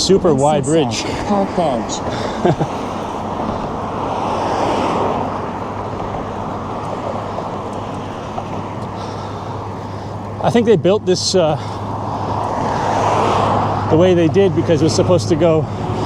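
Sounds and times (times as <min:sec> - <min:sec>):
road traffic noise: 0:00.0 - 0:16.0
vehicle passing by: 0:00.0 - 0:16.0
wind on microphone: 0:01.0 - 0:10.4.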